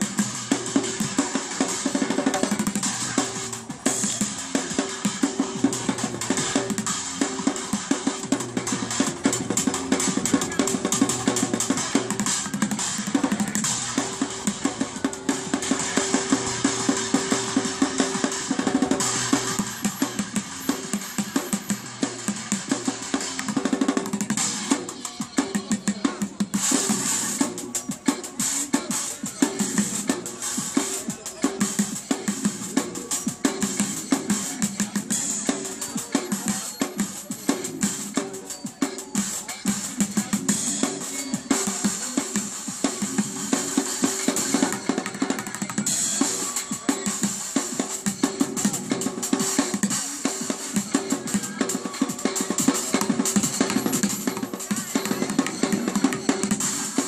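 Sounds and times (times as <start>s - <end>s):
drumming on buckets and barrels: 0.0s - 57.0s
sticks drumming on buckets: 41.3s - 57.0s.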